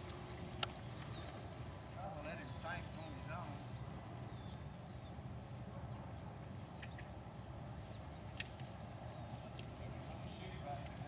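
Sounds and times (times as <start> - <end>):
small bird chirping: 0.0 - 5.2, 6.6 - 7.1, 9.1 - 9.4, 10.1 - 10.6.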